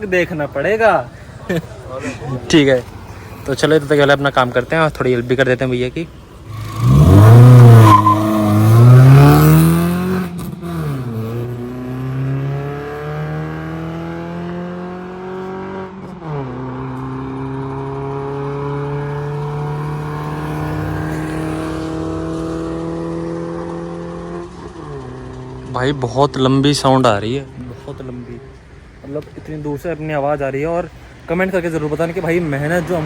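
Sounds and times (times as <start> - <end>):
car engine accelerating: 6.4 - 26.7.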